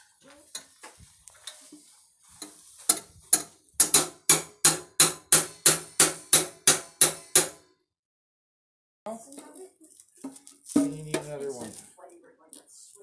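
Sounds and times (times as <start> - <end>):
hammer striking nail into tin can: 2.9 - 7.7.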